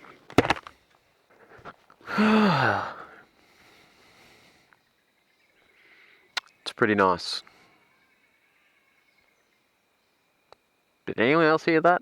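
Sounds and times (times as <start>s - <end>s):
man sighing: 2.0s - 3.3s.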